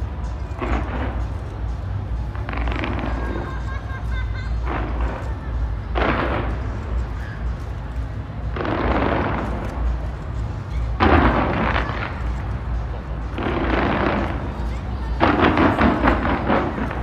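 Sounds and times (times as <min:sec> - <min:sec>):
deep rumble of fireworks firing: 0:00.0 - 0:17.0
firework booms: 0:05.9 - 0:07.0, 0:11.0 - 0:12.4, 0:13.3 - 0:14.6, 0:15.2 - 0:17.0.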